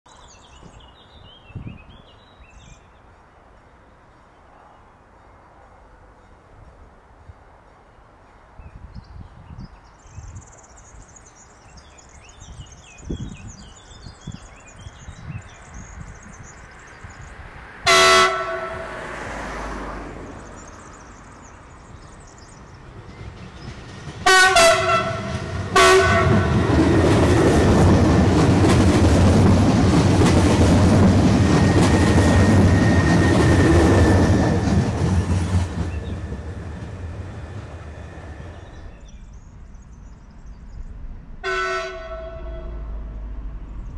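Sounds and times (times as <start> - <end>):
train horn blasts: 17.9 - 19.2, 24.2 - 26.8, 41.4 - 43.1
train wheels rumbling and clattering: 22.1 - 39.0.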